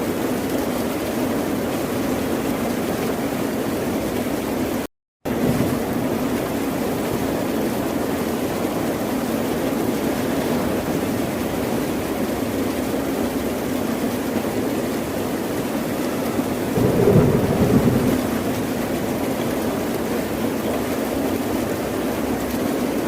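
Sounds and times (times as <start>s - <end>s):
ocean surf rushing: 16.7s - 19.8s.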